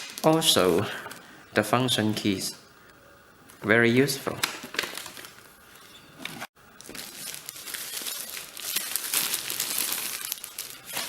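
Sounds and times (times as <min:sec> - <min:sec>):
plastic packaging crinkling: 0:04.4 - 0:05.6, 0:06.8 - 0:11.0.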